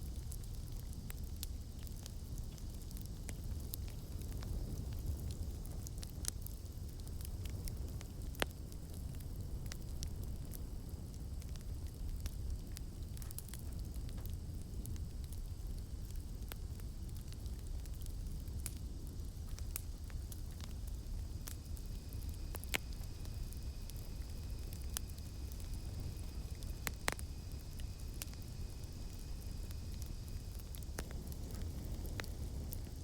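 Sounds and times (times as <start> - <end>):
campfire crackling and popping: 0.0 - 33.0
lower insect drone: 7.8 - 33.0
cicadas droning: 9.0 - 33.0.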